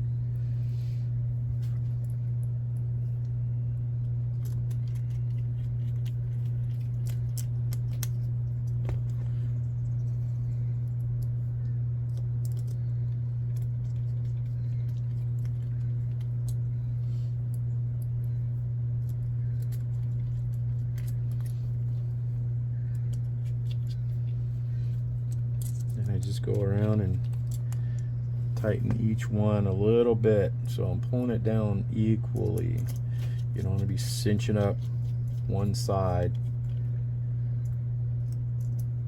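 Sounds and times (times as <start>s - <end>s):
steady low hum: 0.0s - 39.0s
small metal clicks: 25.3s - 26.1s.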